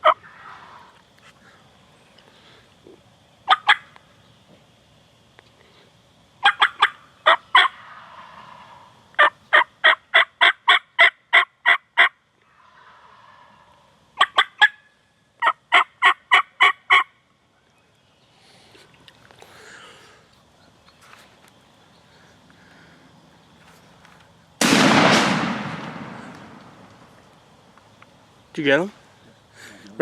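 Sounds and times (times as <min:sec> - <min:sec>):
turkey yelping: 0:00.0 - 0:00.9, 0:03.5 - 0:03.9, 0:06.4 - 0:14.8, 0:15.4 - 0:17.1.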